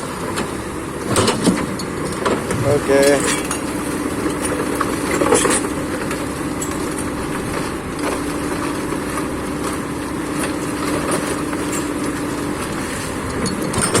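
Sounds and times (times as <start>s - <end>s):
excavator diesel engine droning: 0.0s - 14.0s.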